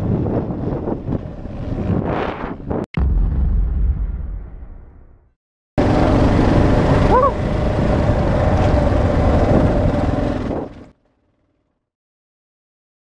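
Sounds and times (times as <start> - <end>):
motorcycle engine running: 5.8 - 11.8.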